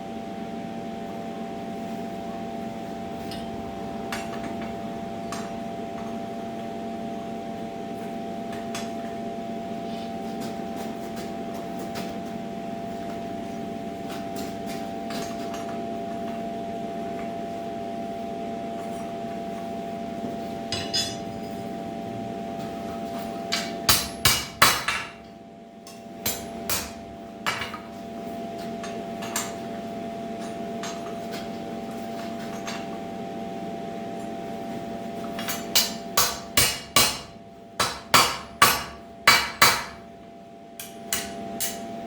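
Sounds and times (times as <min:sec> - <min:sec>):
machine hum: 0:00.0 - 0:24.7
metal tools clinking: 0:20.7 - 0:21.6.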